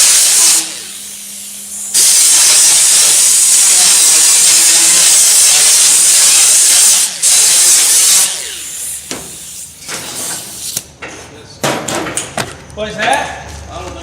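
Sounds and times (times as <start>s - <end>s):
air escaping hiss: 0.0s - 10.9s.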